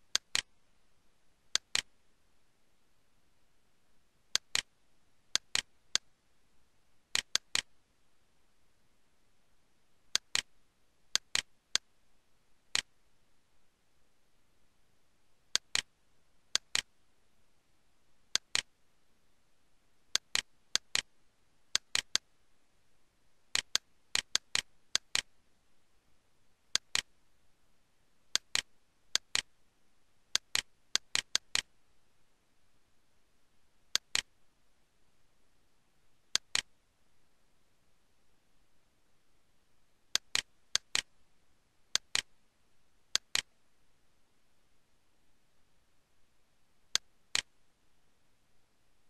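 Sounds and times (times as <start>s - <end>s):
computer mouse clicking: 0.1s - 0.5s, 1.6s - 1.9s, 4.3s - 4.7s, 5.3s - 6.1s, 7.1s - 7.7s, 10.1s - 10.5s, 11.1s - 11.9s, 15.5s - 15.9s, 16.5s - 16.9s, 18.3s - 18.7s, 20.1s - 21.1s, 21.7s - 22.2s, 23.5s - 25.3s, 26.7s - 27.1s, 28.3s - 29.5s, 30.3s - 31.7s, 33.9s - 34.3s, 36.3s - 36.7s, 40.1s - 41.1s, 41.9s - 42.3s, 43.1s - 43.5s, 46.9s - 47.5s.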